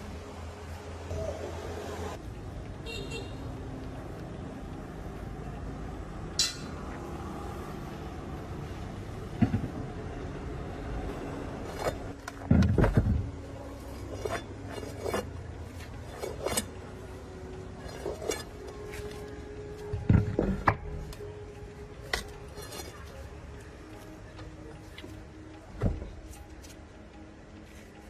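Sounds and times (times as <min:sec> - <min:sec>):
faint background music: 0:00.0 - 0:28.0.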